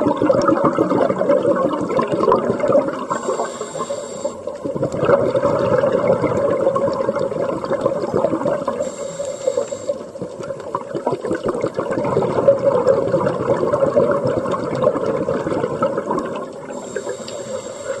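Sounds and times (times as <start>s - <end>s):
exhaled bubbles underwater: 0.0s - 18.0s
regulator inhalation hiss: 3.0s - 4.6s, 8.7s - 10.2s, 16.7s - 18.0s.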